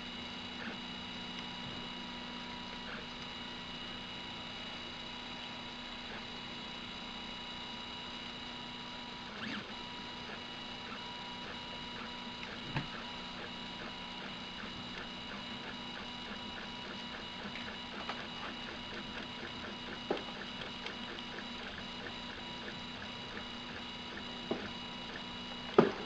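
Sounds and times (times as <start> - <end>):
printer moves ticking: 14.9 - 25.9.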